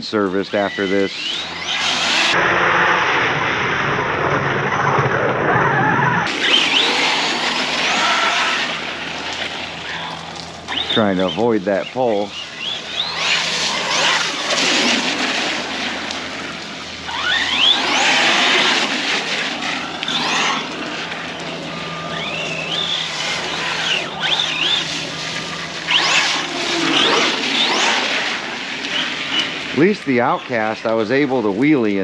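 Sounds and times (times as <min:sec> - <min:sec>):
electric motor whining: 0:00.3 - 0:31.6
wet tyres hissing: 0:06.3 - 0:31.2.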